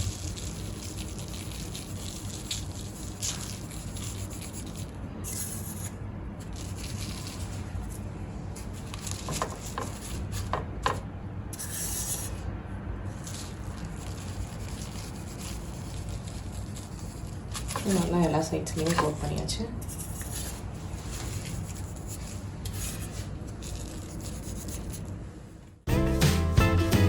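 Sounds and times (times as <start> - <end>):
hissing sprinkles of sugar: 0.0 - 7.9
dry gritty rubbing in sugar: 0.0 - 10.5, 13.1 - 19.1, 19.9 - 25.0.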